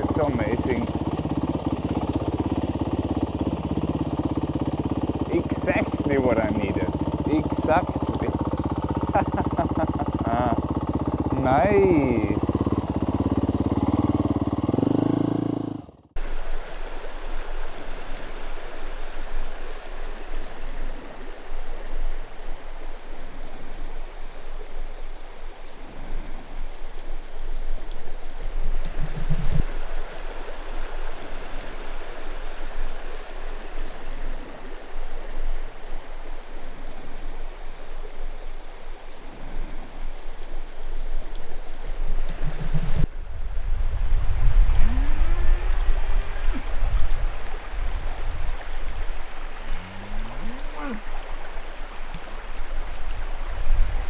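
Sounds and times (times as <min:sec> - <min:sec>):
dirt bike engine running: 0:00.0 - 0:22.6, 0:28.4 - 0:34.2, 0:41.9 - 0:43.1
stream flowing: 0:00.0 - 0:54.0.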